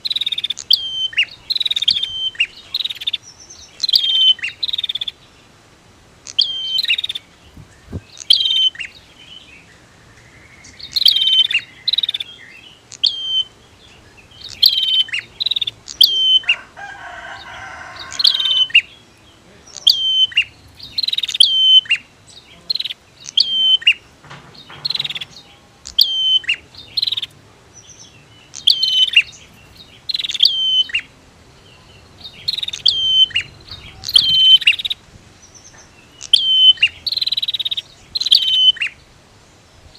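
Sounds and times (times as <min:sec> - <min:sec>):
bird sharp high chirps: 0:00.0 - 0:05.4, 0:06.2 - 0:39.1
bird buzzing call: 0:00.0 - 0:39.2.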